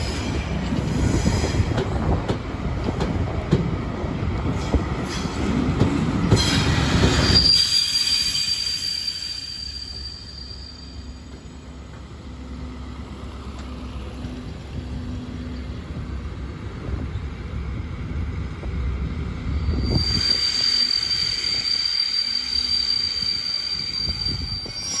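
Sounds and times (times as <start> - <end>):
train rolling with low rumble: 0.0 - 25.0
high-pitched train squeal: 4.6 - 11.6, 19.4 - 25.0.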